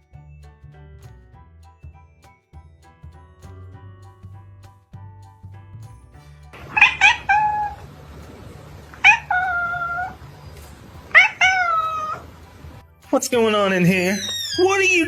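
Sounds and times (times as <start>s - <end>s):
quiet background music: 0.0s - 15.0s
cat meowing: 6.6s - 7.8s, 9.0s - 10.2s, 11.1s - 12.3s.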